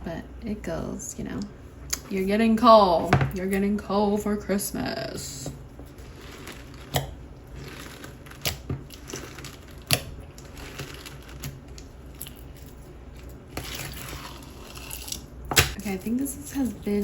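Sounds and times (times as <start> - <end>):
slime squishing and crackling: 5.9 - 17.0.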